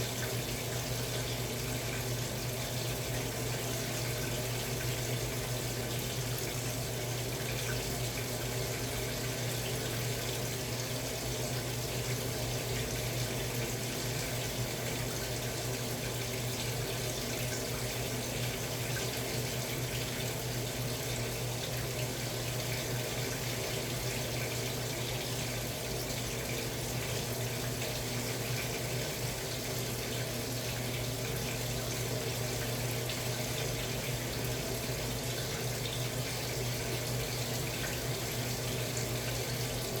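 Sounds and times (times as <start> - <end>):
running water in washing machine: 0.0 - 40.0.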